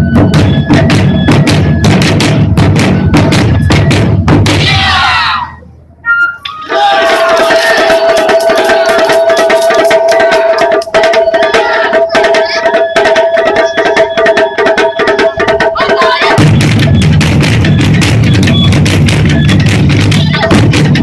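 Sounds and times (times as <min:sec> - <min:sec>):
taiko drums ensemble: 0:00.0 - 0:05.3, 0:06.6 - 0:21.0.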